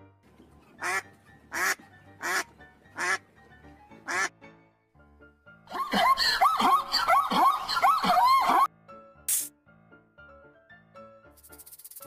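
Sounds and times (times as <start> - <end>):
duck quacking: 0.8 - 3.2, 4.1 - 4.3.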